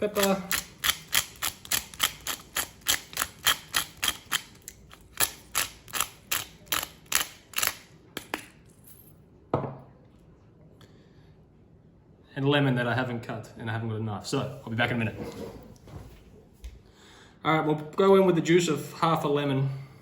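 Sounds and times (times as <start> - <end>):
pepper mill grinding clicks: 0.1 - 7.9.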